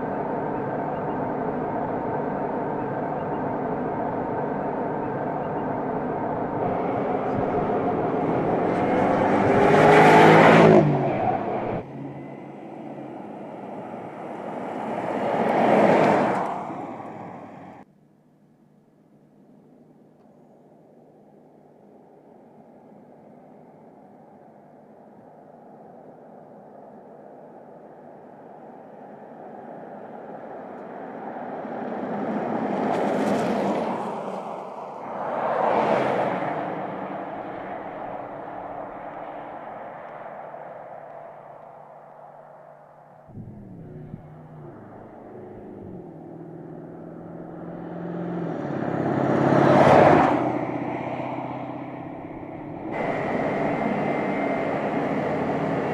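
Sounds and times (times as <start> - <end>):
car driving past: 6.4 - 17.8, 30.6 - 55.9.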